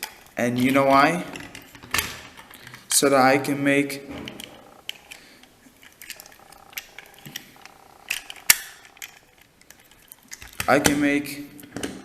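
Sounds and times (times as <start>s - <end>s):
plastic toy clicks and clatter: 4.3s - 11.8s.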